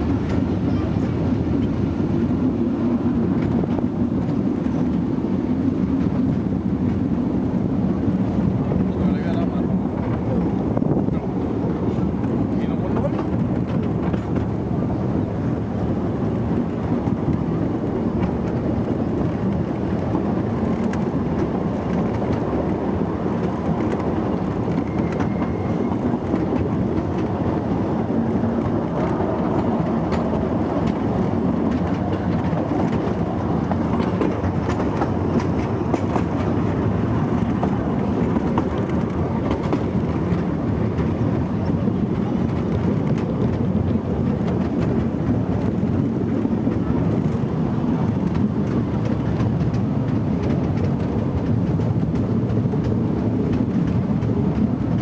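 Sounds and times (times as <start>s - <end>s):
train wheels rumbling on track: 0.0s - 55.0s
wheels clicking over rail joints: 0.0s - 55.0s.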